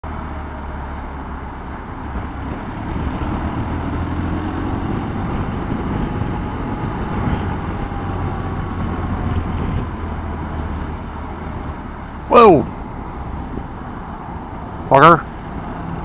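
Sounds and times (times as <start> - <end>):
motorcycle engine rumble: 0.0 - 16.0
wind noise on microphone: 2.0 - 11.9, 12.6 - 14.8.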